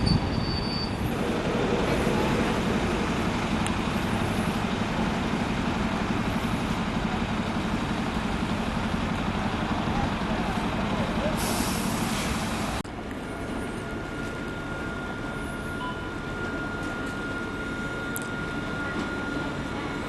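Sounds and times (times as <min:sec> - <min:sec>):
high metallic squeal: 0:00.0 - 0:01.1
diesel engine running: 0:00.0 - 0:20.0.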